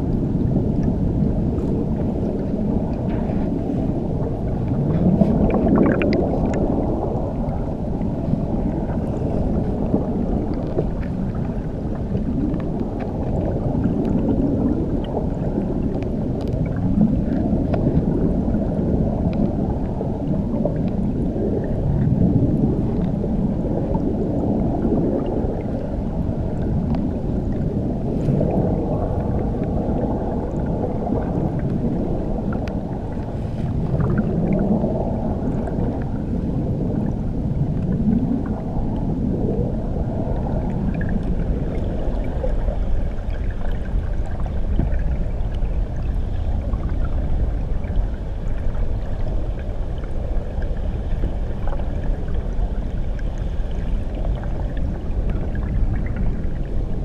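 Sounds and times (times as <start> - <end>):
muffled underwater waterfall rushing: 0.0 - 57.0.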